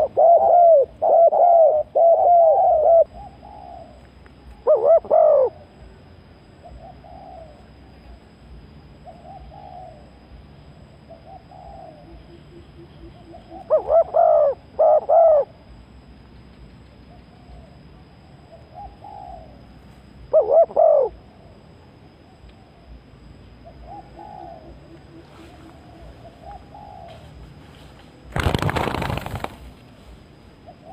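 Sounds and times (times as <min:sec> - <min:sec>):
dove cooing: 0:00.0 - 0:04.0, 0:04.6 - 0:05.7, 0:06.6 - 0:08.2, 0:09.0 - 0:10.2, 0:11.0 - 0:15.6, 0:18.5 - 0:21.5, 0:23.6 - 0:27.5, 0:28.4 - 0:29.7, 0:30.6 - 0:30.9.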